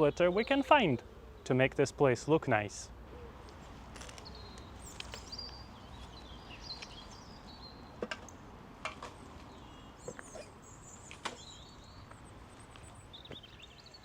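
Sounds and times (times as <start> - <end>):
small birds chirping: 0.0 - 1.6, 3.2 - 14.0.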